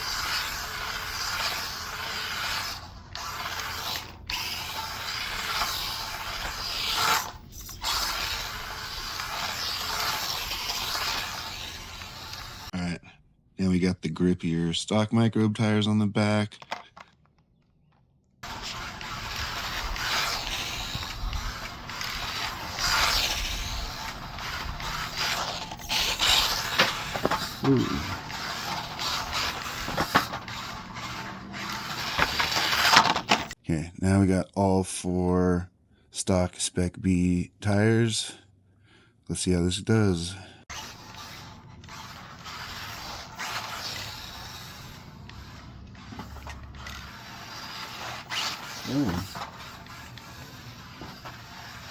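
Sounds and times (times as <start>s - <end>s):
electric motor and gears whirring: 0.0s - 12.8s, 18.4s - 33.6s, 40.7s - 51.9s
tyres scrabbling on ground: 18.4s - 33.6s.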